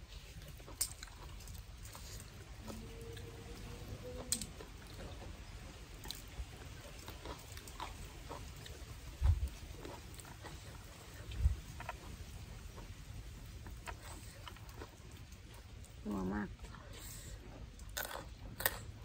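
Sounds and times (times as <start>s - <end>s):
chewing: 0.0s - 19.0s.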